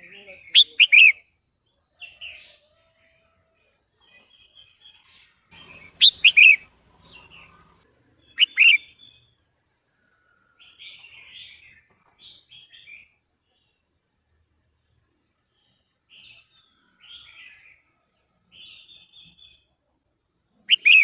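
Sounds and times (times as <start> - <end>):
bird whistled calls: 0.6 - 1.2, 5.7 - 6.6, 8.4 - 8.9, 20.7 - 21.0
bird scratchy chattering: 5.6 - 6.6, 8.4 - 8.8, 20.7 - 21.0.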